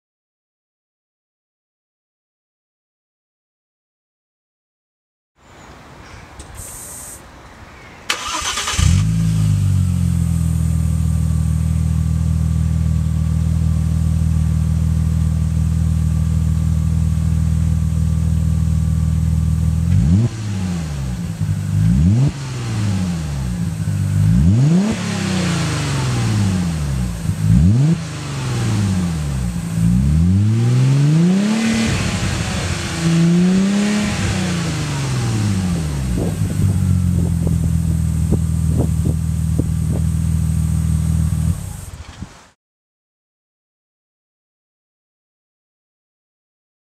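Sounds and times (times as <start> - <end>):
engine revving: 8.1 - 13.6, 18.6 - 41.9
car engine cranking and idling: 8.1 - 42.4.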